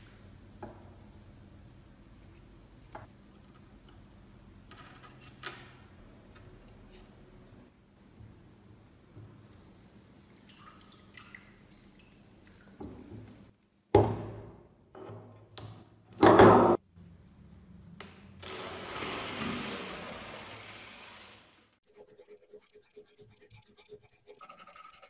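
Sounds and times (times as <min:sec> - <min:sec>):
water splashing and pouring: 0:18.4 - 0:21.4.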